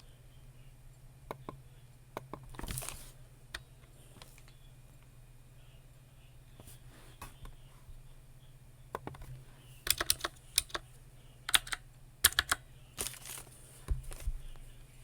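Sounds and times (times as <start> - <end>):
computer keyboard typing: 9.0 - 10.9, 11.5 - 13.3.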